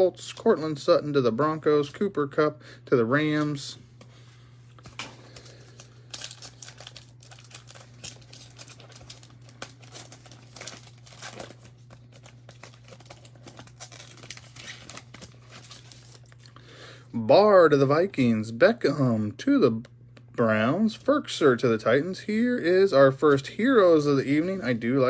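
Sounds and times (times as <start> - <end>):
steady low hum: 0.0 - 25.0
foil wrapper crinkling and tearing: 4.8 - 16.6.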